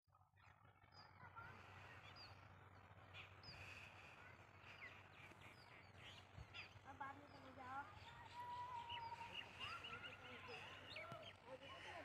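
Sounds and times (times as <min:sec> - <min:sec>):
faint birds chirping: 0:00.8 - 0:12.0.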